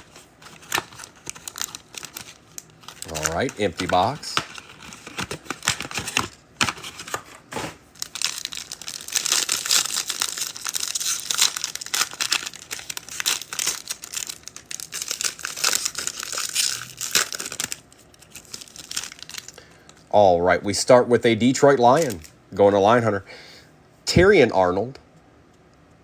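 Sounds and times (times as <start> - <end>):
plastic wrapper crinkling and tearing: 0.0 - 20.1, 21.8 - 22.4.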